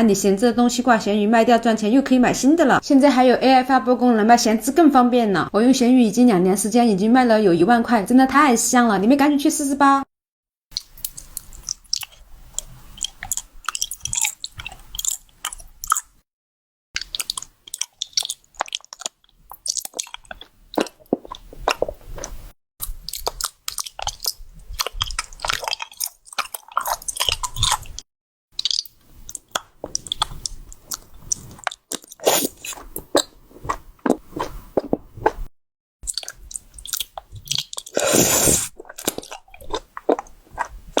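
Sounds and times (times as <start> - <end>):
wet chewing: 10.7 - 16.1, 17.0 - 28.0, 28.6 - 41.0.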